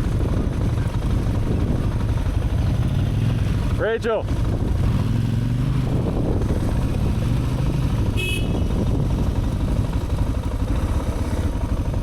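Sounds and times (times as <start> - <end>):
motorcycle engine rumble: 0.0 - 12.0
high-pitched horn beep: 8.2 - 8.7.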